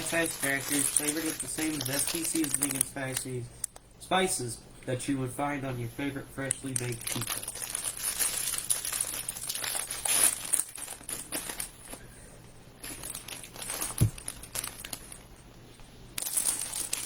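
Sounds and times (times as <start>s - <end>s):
plastic snack packet crinkling: 0.0s - 3.2s, 6.5s - 11.8s, 12.8s - 15.3s, 16.2s - 17.0s.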